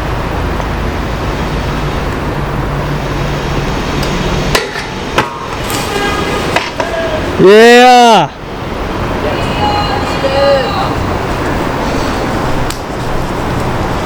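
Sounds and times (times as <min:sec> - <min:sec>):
scooter striking concrete: 0:04.0 - 0:07.3.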